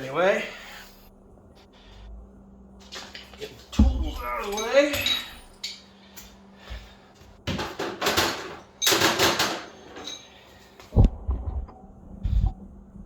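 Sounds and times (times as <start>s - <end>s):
hand tools clattering and scraping: 2.8s - 6.3s, 7.5s - 10.8s.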